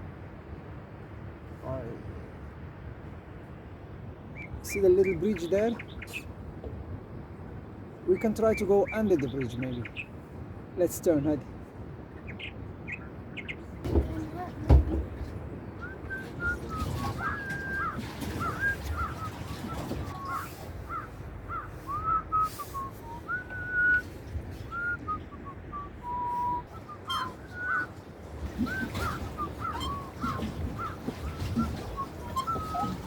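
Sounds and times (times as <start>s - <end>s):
wind: 0.0s - 33.0s
water rumbling: 12.1s - 33.0s
songbird whistling: 15.6s - 28.0s, 28.6s - 33.0s.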